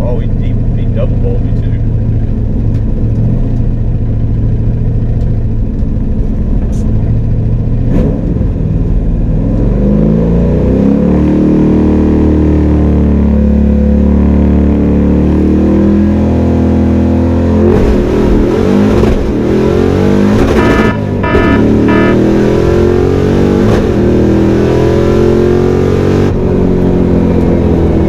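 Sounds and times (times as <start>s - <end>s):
car engine accelerating hard: 6.5s - 28.0s.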